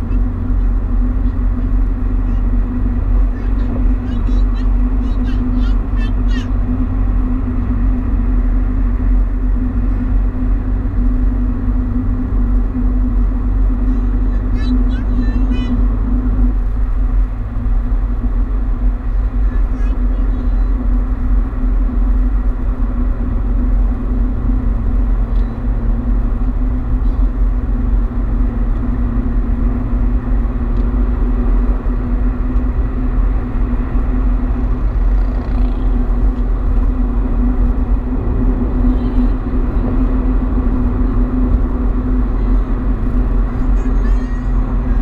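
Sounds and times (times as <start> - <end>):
car engine and tyres rumbling: 0.0 - 45.0.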